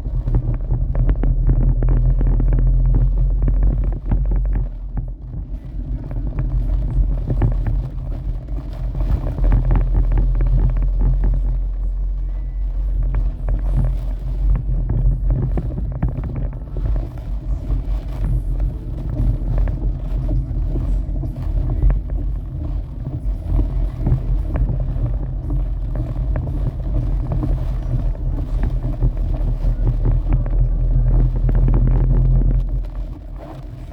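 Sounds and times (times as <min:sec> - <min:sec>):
storm wind buffeting microphone: 0:00.0 - 0:33.9.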